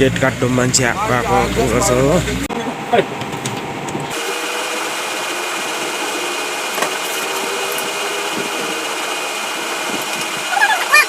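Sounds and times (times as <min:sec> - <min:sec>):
small motor whining: 0:04.1 - 0:11.0.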